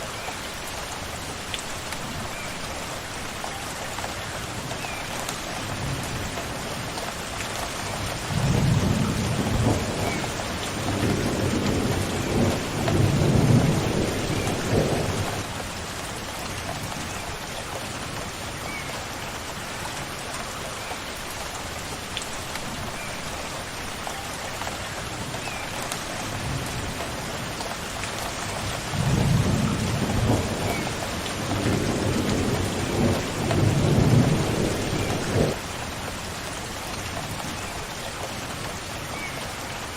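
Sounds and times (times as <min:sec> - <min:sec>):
steady rain falling: 0:00.0 - 0:39.9
thunder rumbling: 0:08.3 - 0:15.4, 0:28.9 - 0:35.6.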